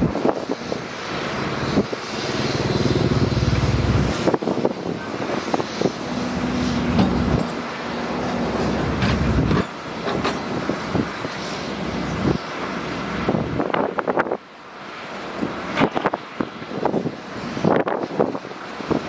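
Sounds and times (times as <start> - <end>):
diesel engine running under load: 0.0 - 13.7.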